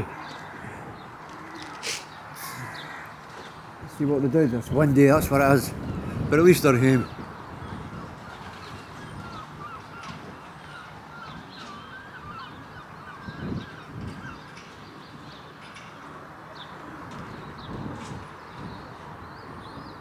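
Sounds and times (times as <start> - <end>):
steady outdoor hiss: 0.0 - 8.2
wind buffeting microphone: 0.0 - 16.0, 16.6 - 20.0
birds chirping: 0.0 - 20.0.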